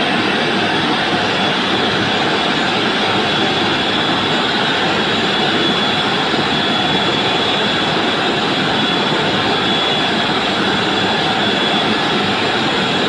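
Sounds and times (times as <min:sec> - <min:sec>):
turbine mechanical rush: 0:00.0 - 0:13.0
thin high whine: 0:08.8 - 0:13.0.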